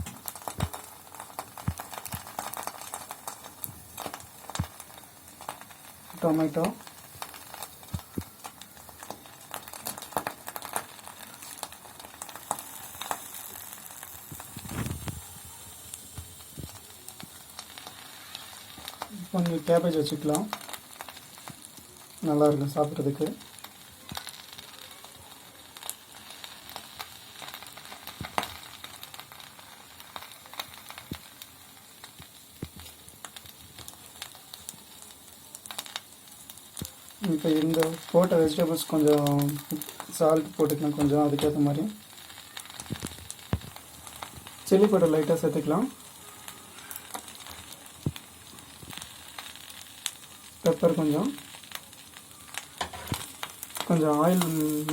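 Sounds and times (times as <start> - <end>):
egg sizzling in a frying pan: 0.0 - 54.9.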